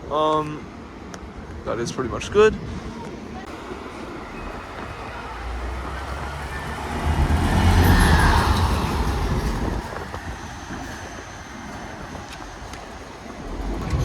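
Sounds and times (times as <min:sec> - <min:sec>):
vehicle passing by: 0:03.4 - 0:14.0.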